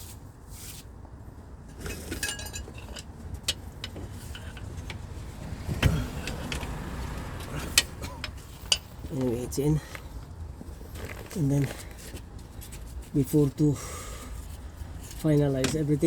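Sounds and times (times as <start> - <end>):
metal tools clinking: 1.7 - 5.0, 5.8 - 10.2.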